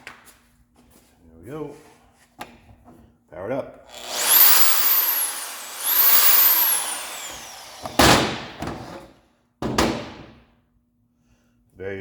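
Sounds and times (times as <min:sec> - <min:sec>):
power tool motor whine: 0:03.9 - 0:08.8.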